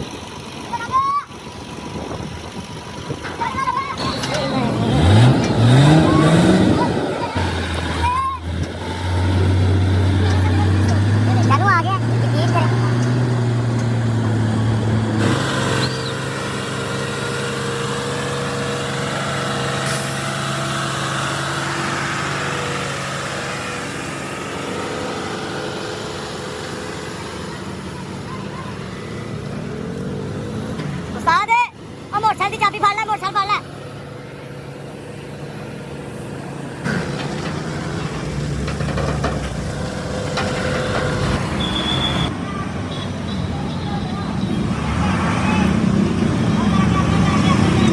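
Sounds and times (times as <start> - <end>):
heavy vehicle engine running: 0.0 - 47.9
hiss: 19.8 - 21.1
knocks and clanks: 36.8 - 41.6.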